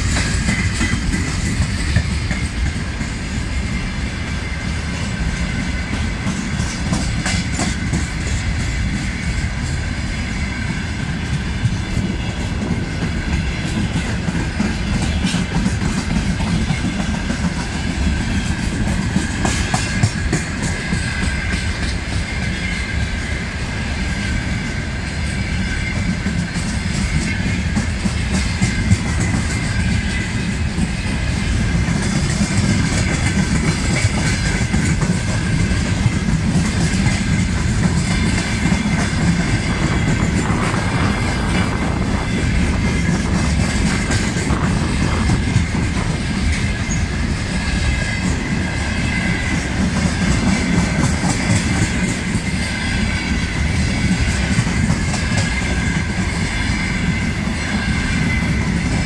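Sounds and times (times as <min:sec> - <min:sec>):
train wheels rumbling on rails: 0:00.0 - 0:59.0
high wheel squeal: 0:38.1 - 0:50.8.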